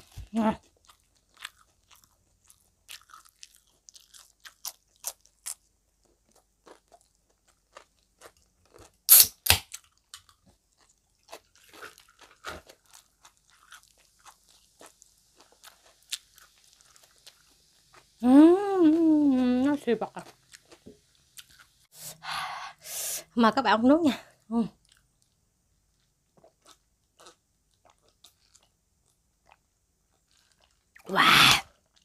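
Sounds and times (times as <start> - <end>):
chewing cucumber crunches: 0.0 - 18.1, 20.2 - 21.7, 26.0 - 31.1.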